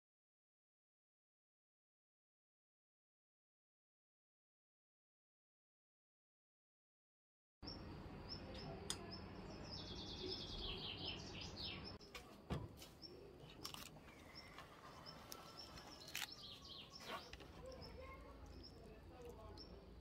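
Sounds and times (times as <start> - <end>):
small birds chirping: 7.6 - 20.0.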